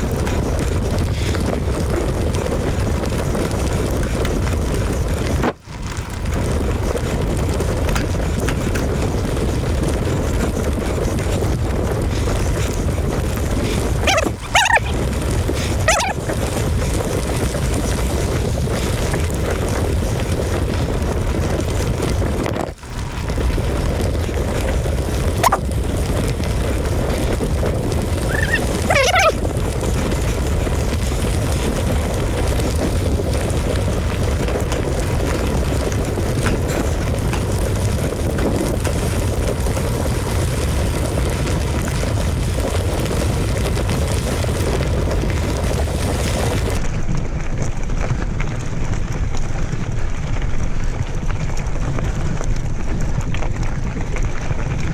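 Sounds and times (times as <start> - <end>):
wind buffeting microphone: 0.0 - 46.9
short squeak: 14.1 - 15.0, 15.9 - 16.2, 25.4 - 25.6, 28.3 - 29.4.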